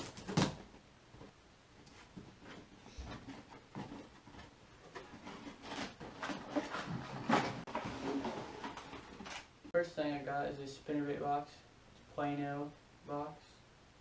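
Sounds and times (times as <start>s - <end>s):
cardboard packaging rustling: 0.0s - 0.7s, 1.9s - 9.5s.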